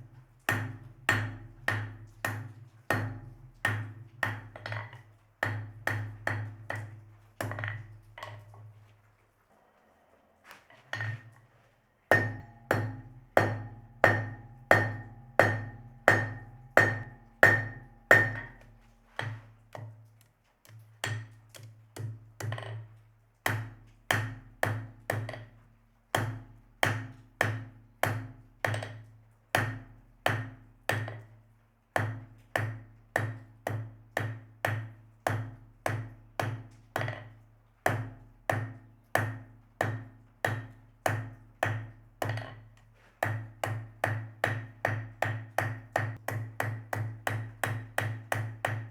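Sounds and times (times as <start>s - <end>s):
hammer striking metal on anvil: 12.1s - 18.7s, 43.2s - 48.9s.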